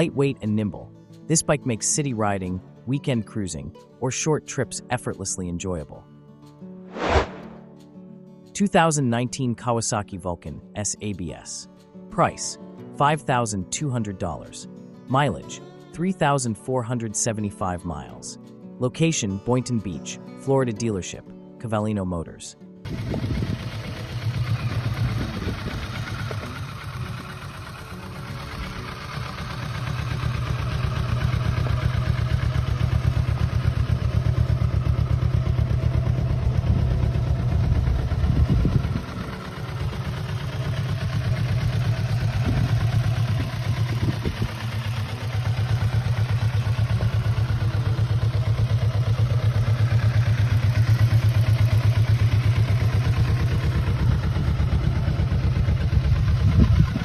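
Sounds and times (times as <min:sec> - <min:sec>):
motorcycle engine idling: 0:22.9 - 0:57.0.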